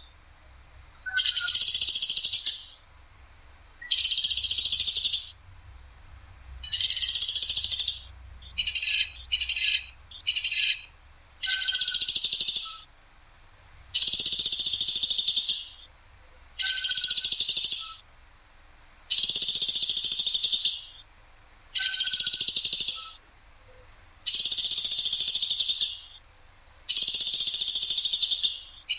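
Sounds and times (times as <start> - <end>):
bird rattling trills: 3.8 - 5.4, 6.6 - 12.9, 14.0 - 15.9, 19.1 - 21.0, 21.8 - 23.2, 24.3 - 26.2, 26.9 - 28.9.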